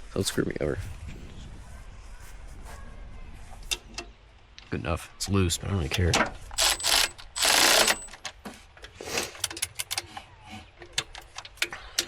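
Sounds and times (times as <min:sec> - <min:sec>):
metal tools clinking: 0:05.9 - 0:08.4.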